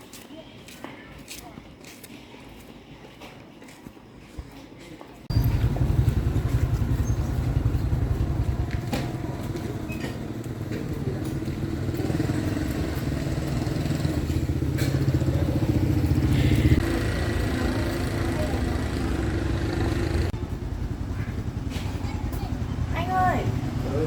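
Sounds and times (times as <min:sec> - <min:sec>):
engine running with pulsing beat: 0:05.3 - 0:24.0.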